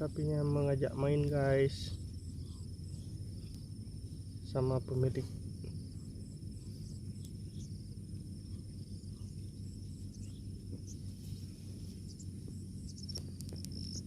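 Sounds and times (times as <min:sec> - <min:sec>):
insects trilling: 0:00.0 - 0:14.0
low rumbling background noise: 0:00.0 - 0:14.0.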